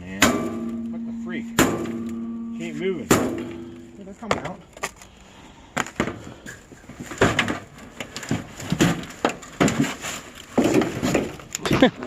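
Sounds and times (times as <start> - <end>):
metal knocks and scrapes: 0.2 - 4.5.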